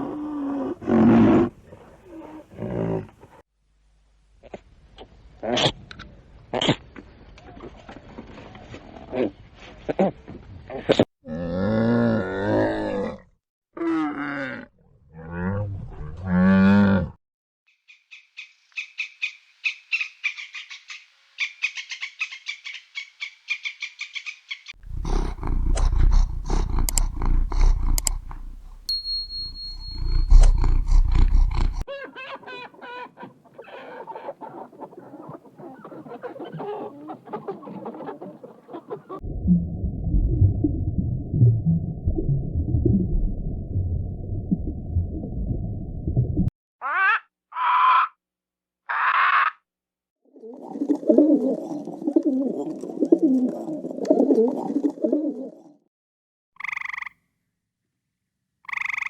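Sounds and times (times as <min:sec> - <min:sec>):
animal calling: 0:23.5 - 0:39.2, 0:46.8 - 0:48.2
deep low sound: 0:24.8 - 0:31.8, 0:39.2 - 0:46.5.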